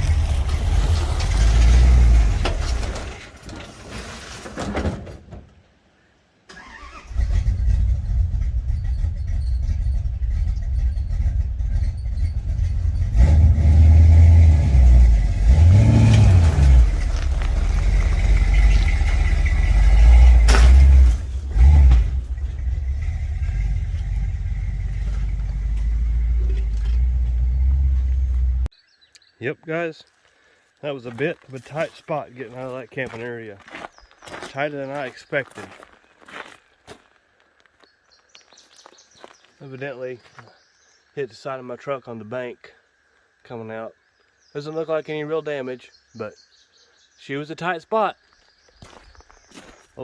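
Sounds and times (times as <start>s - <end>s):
pickup engine revving under load: 0.0s - 3.2s, 6.6s - 28.7s.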